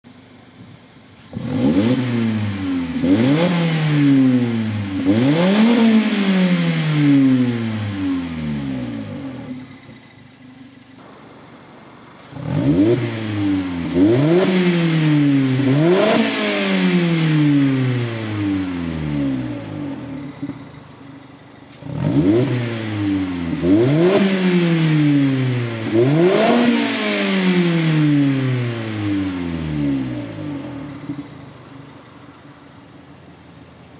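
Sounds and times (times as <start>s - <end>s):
car engine idling: 0.1s - 26.4s, 27.6s - 33.9s
car engine revving: 1.2s - 33.3s.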